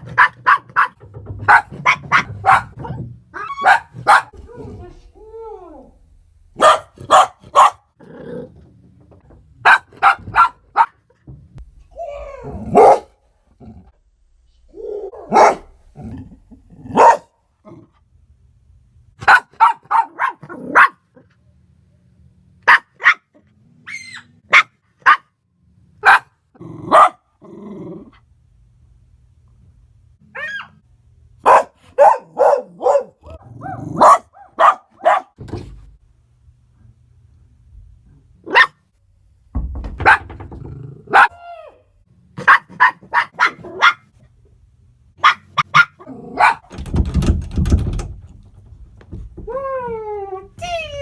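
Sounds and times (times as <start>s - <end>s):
dog barking: 0.0s - 2.8s, 3.6s - 4.4s, 6.6s - 7.9s, 9.6s - 11.0s, 12.7s - 13.2s, 15.3s - 15.7s, 16.9s - 17.4s, 19.2s - 21.1s, 22.6s - 23.4s, 24.5s - 25.4s, 26.0s - 27.2s, 31.4s - 35.4s, 38.4s - 38.8s, 41.1s - 41.4s, 42.4s - 44.1s, 45.2s - 46.7s
knocking: 0.0s - 4.3s, 39.5s - 41.0s, 46.7s - 49.6s
dog whining: 30.3s - 30.8s.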